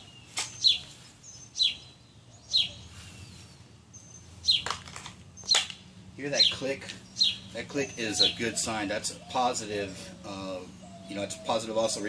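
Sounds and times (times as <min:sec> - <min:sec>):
bird calling: 0:00.0 - 0:12.0.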